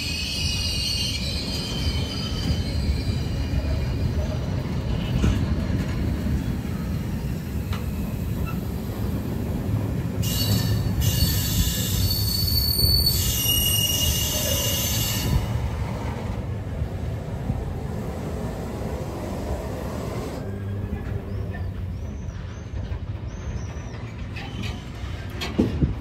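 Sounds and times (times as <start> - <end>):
high-pitched wheel squeal: 0.0 - 4.3, 10.2 - 15.5
freight train wheels rumbling: 0.0 - 26.0.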